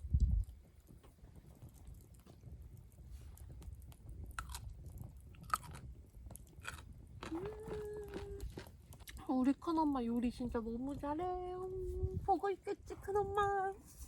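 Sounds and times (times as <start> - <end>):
person chewing crunchy food: 1.6 - 9.2.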